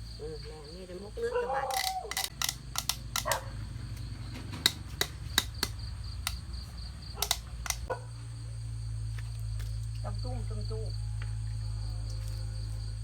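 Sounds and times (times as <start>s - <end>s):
crickets chirring: 0.0s - 13.0s
sharp clicks and knocks: 1.7s - 6.4s, 7.2s - 7.9s.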